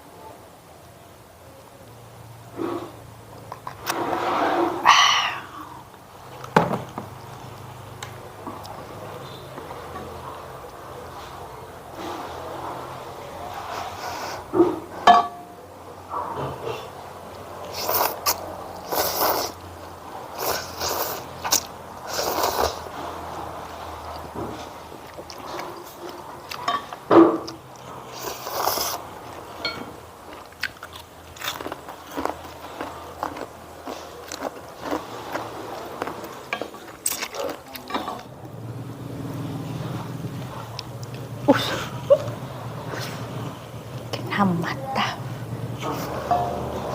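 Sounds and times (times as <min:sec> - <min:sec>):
chewing and mouth noises: 0:24.0 - 0:29.5, 0:30.2 - 0:38.3.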